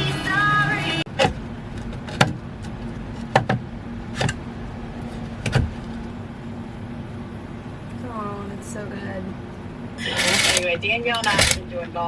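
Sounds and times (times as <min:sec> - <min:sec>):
steady low hum: 0:00.0 - 0:12.0
sharp knocks and clicks: 0:01.1 - 0:06.1.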